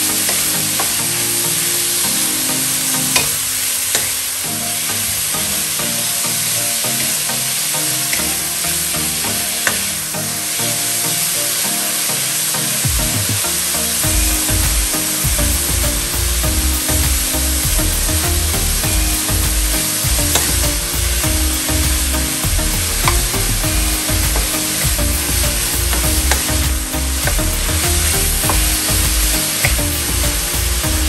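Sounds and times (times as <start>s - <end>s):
beef sizzling in a wok: 14.3s - 31.0s.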